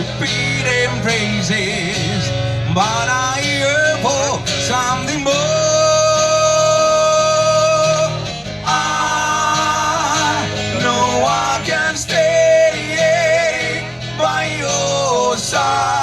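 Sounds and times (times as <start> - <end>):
guitar accompaniment: 0.0 - 16.0
man singing with vibrato: 0.0 - 16.0.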